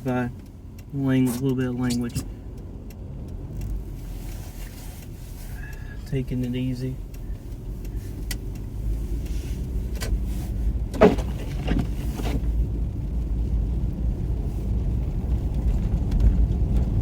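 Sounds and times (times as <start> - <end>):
car engine and tyres rumbling: 0.0 - 17.0
short knocks: 10.9 - 12.4.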